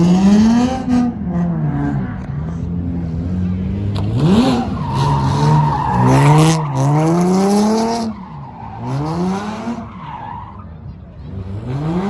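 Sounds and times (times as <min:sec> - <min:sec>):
car engine revving hard: 0:03.7 - 0:08.1.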